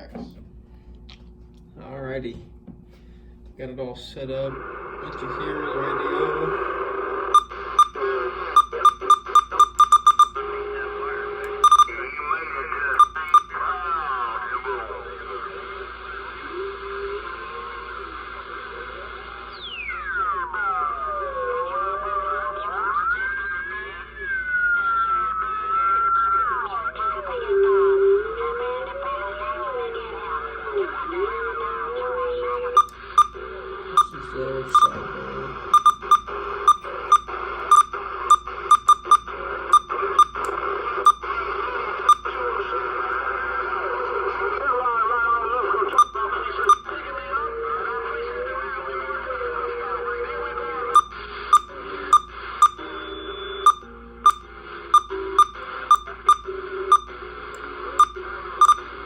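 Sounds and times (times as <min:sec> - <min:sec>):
short sharp key beeps: 0:07.4 - 0:08.0, 0:08.6 - 0:10.4, 0:11.5 - 0:12.0, 0:13.0 - 0:13.5, 0:32.6 - 0:33.4, 0:34.0 - 0:35.0, 0:35.7 - 0:41.2, 0:42.1 - 0:42.3, 0:46.0 - 0:46.9, 0:51.0 - 0:52.8, 0:53.7 - 0:54.4, 0:55.0 - 0:57.1, 0:58.0 - 0:58.9.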